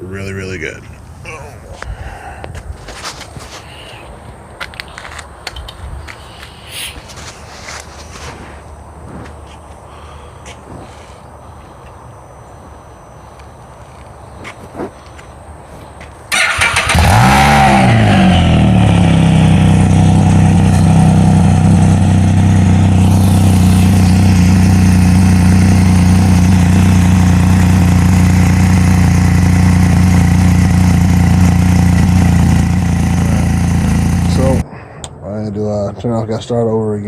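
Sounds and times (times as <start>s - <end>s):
three-cylinder engine revving and idling: 16.3s - 34.6s.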